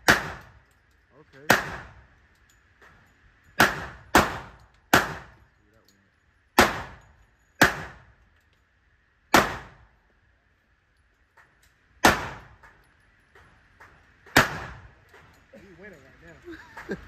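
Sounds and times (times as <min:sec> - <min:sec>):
handgun shots echoing: 0:00.0 - 0:00.6, 0:03.6 - 0:05.4, 0:07.6 - 0:08.1, 0:09.3 - 0:09.8, 0:12.0 - 0:12.8, 0:13.8 - 0:15.4.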